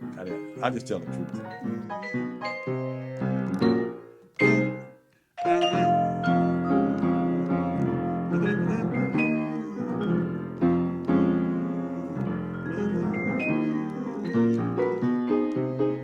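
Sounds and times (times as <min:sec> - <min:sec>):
jazz piano chords: 0:00.0 - 0:04.8, 0:05.4 - 0:16.0.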